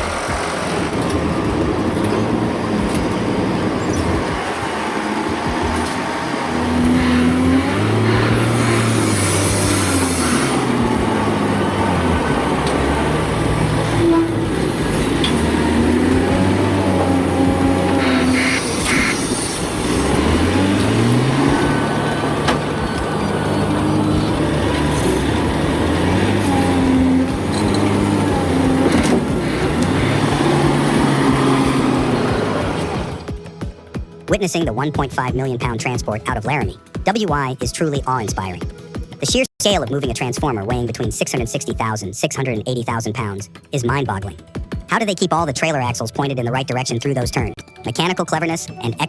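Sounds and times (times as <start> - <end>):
heavy truck engine under load: 0.0 - 34.3
road noise: 0.0 - 49.0.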